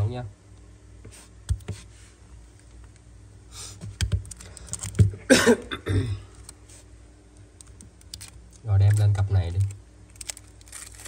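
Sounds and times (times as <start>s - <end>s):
man coughing: 5.2s - 6.3s.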